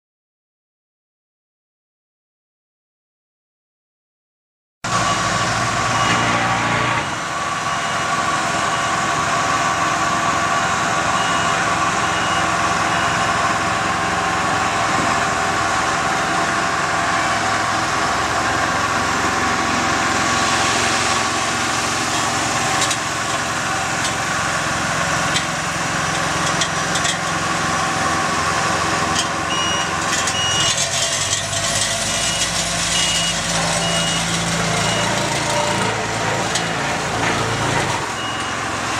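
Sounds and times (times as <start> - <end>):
reversing alarm beeping: 4.9 - 14.7, 29.4 - 30.8, 32.1 - 36.0, 38.0 - 38.9
heavy machinery engines running: 4.9 - 38.9.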